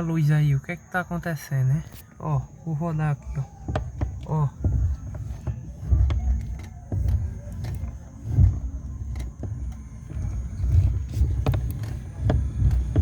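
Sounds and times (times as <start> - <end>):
steering cracking clicks: 3.1 - 13.0
car engine running: 3.5 - 13.0.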